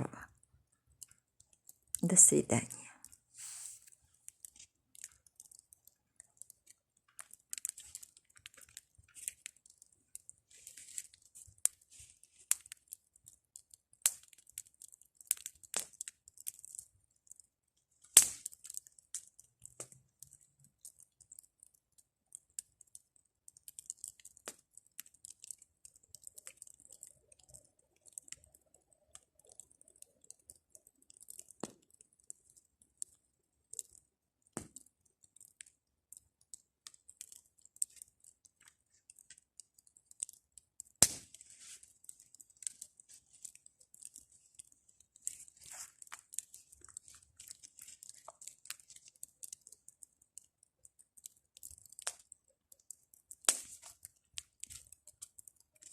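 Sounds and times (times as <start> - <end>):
wood fire crackling and popping: 0.0 - 55.9
faint fire hiss: 2.1 - 4.2.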